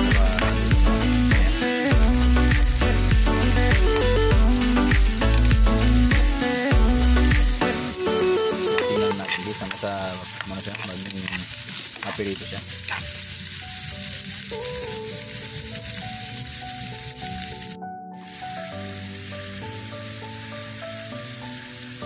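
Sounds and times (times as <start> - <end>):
vegetables sizzling in oil: 0.0 - 22.0
metal spatula stirring: 8.9 - 13.8.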